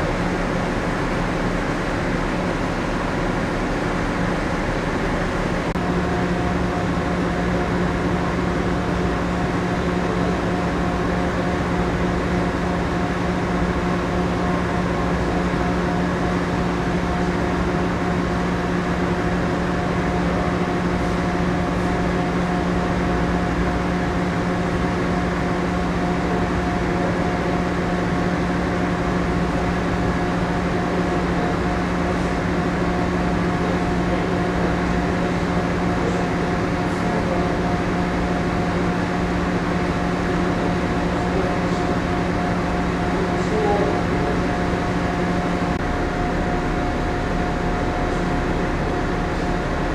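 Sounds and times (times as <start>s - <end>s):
ship machinery hum: 0.0s - 49.9s.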